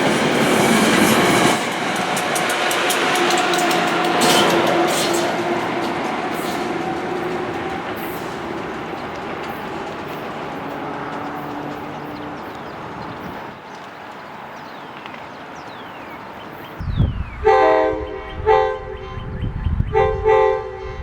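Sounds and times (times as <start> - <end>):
train wheels clicking over rail joints: 0.0 - 15.9
train humming tone: 0.0 - 21.0.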